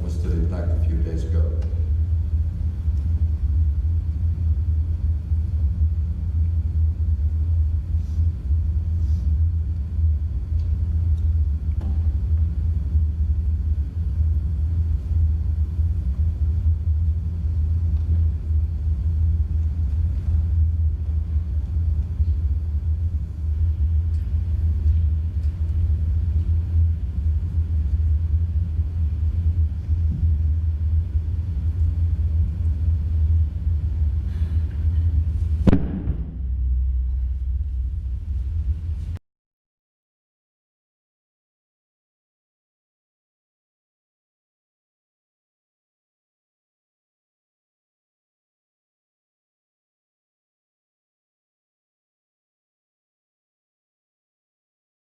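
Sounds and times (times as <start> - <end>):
loud deep rumble: 0.0 - 39.2.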